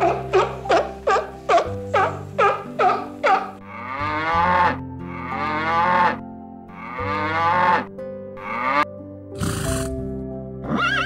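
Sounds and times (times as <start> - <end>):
sea lion barking and calling: 0.0 - 6.2.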